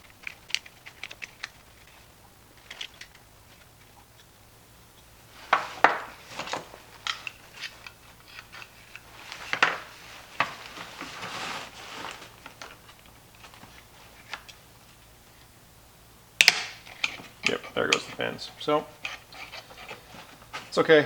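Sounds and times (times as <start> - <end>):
plastic clicks and snaps: 0.0 - 1.9, 16.4 - 17.2
pry tools scraping plastic: 16.8 - 20.8.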